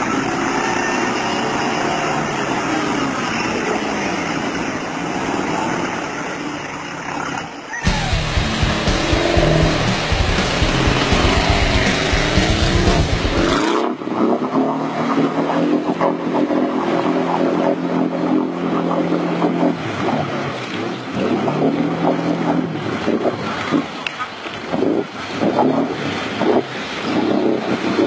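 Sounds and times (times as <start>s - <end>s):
water splashing: 0.0s - 28.0s
car engine running under load: 7.9s - 22.8s.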